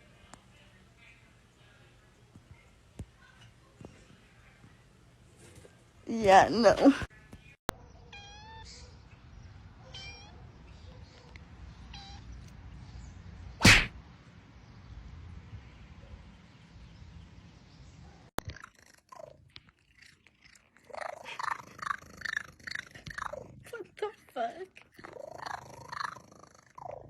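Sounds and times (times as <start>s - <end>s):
cat meowing: 8.0s - 9.0s, 9.8s - 10.5s, 11.9s - 12.3s.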